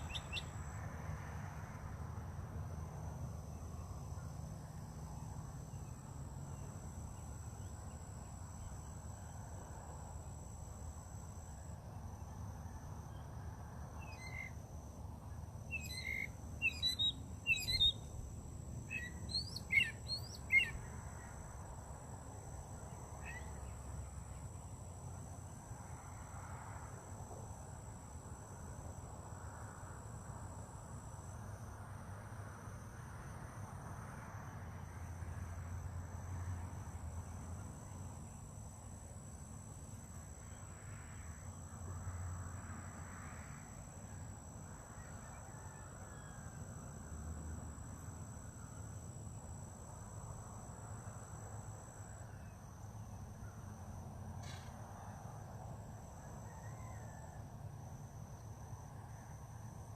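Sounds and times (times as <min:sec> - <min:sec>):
insects trilling: 0:00.0 - 0:01.8, 0:02.5 - 0:31.4, 0:34.6 - 0:59.9.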